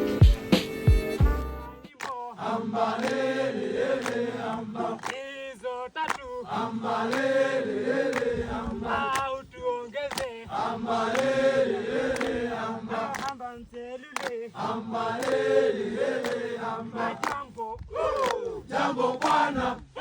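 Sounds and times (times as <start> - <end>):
hands clapping: 1.8 - 2.2, 3.0 - 3.3, 4.0 - 5.3, 6.0 - 6.4, 7.1 - 7.4, 8.0 - 8.3, 9.0 - 9.3, 9.9 - 10.5, 11.1 - 11.4, 12.1 - 12.4, 13.1 - 14.5, 15.2 - 15.5, 16.2 - 16.4, 17.2 - 18.5, 19.2 - 19.9
men chanting and singing: 1.8 - 20.0.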